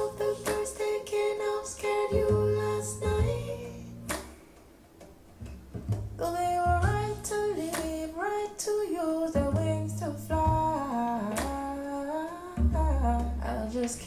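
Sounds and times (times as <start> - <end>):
woman singing wordless melody: 0.0 - 4.1, 6.2 - 14.0
deep sustained bass notes: 2.2 - 4.1, 5.9 - 7.7, 9.4 - 11.4, 12.6 - 13.9.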